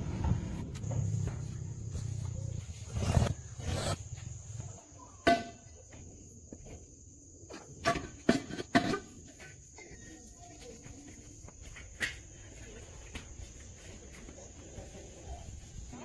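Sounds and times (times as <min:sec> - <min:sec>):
low mechanical rumble: 0:00.0 - 0:04.8.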